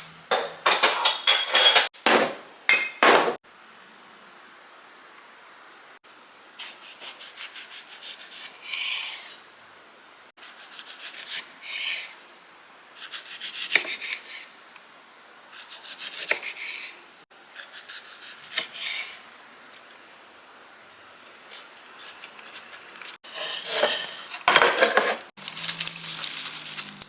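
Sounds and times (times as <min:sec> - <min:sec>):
knife rasping on food: 0:06.6 - 0:09.4, 0:15.6 - 0:19.2, 0:21.5 - 0:25.3.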